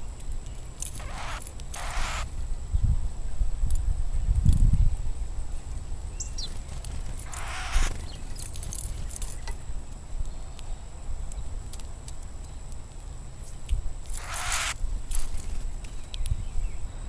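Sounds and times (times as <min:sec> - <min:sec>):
rising high bird chirp: 0:01.0 - 0:02.3, 0:07.2 - 0:08.2, 0:14.2 - 0:14.8.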